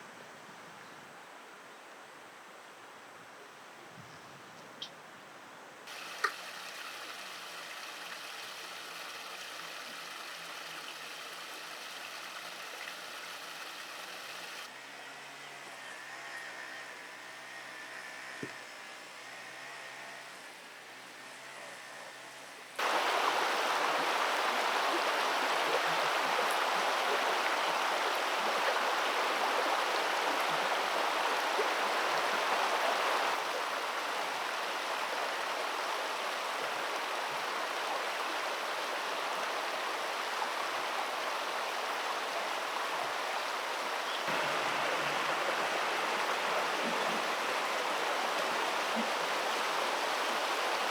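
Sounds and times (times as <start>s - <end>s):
rushing stream water: 5.9s - 14.7s, 22.8s - 50.9s.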